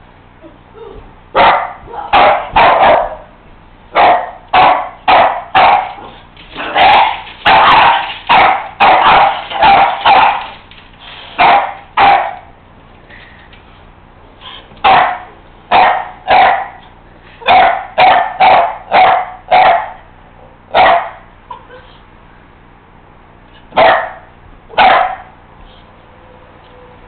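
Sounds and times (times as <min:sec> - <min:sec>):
dog barking: 0:01.4 - 0:03.3, 0:03.9 - 0:06.1, 0:06.7 - 0:10.6, 0:11.4 - 0:12.5, 0:14.8 - 0:16.8, 0:17.4 - 0:20.0, 0:20.7 - 0:21.3, 0:23.8 - 0:25.4.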